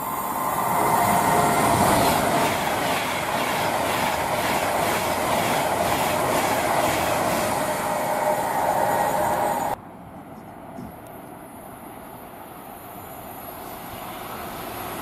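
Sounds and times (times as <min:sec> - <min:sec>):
train rushing past: 0:00.0 - 0:15.0
wheels clattering on rails: 0:00.4 - 0:11.4.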